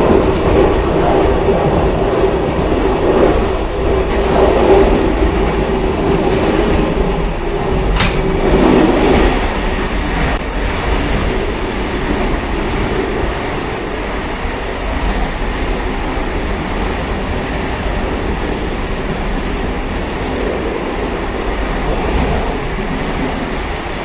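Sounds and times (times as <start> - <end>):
railcar rumbling on track: 0.0 - 24.0
sharp click: 8.0 - 8.8.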